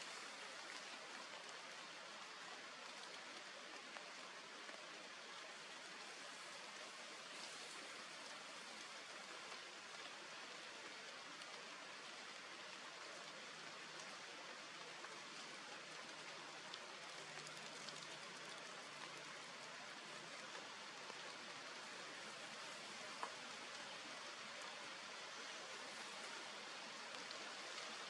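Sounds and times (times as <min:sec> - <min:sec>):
faint background hiss: 0:00.0 - 0:28.0.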